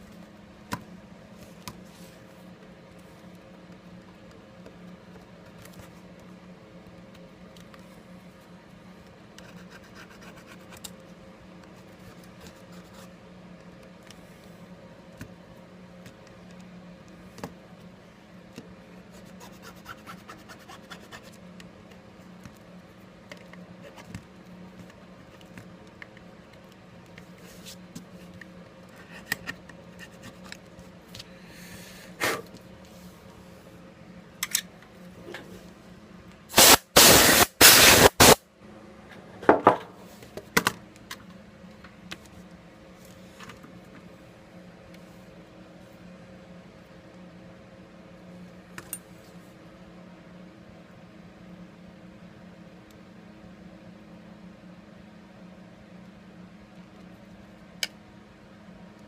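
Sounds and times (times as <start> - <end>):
steady low hum: 0.0 - 59.0
loud noisy bursts: 36.5 - 38.4.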